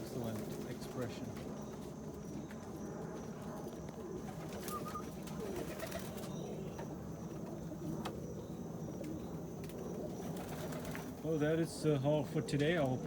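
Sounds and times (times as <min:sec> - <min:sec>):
pigeons cooing: 0:03.6 - 0:11.3.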